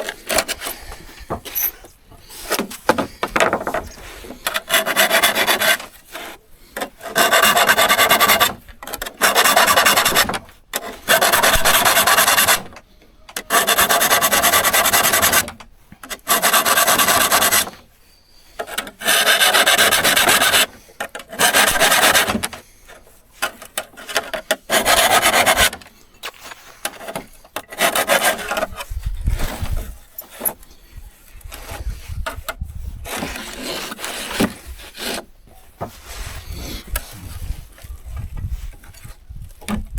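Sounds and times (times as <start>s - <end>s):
light irregular scraping: 0.0s - 39.9s
hand file rasping on saw teeth: 4.4s - 12.8s, 13.5s - 15.5s, 16.1s - 17.9s, 18.5s - 22.6s, 23.4s - 25.8s, 26.4s - 29.0s, 31.4s - 35.3s.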